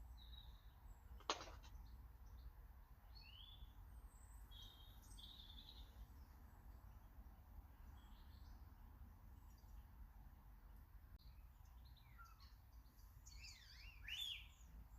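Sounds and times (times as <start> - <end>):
birds chirping: 0.0 - 6.9, 11.2 - 14.9.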